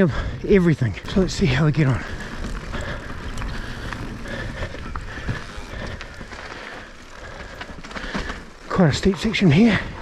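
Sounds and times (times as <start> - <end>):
bike tyres on dirt: 0.0 - 10.0
bike clicks and rattles: 0.2 - 10.0.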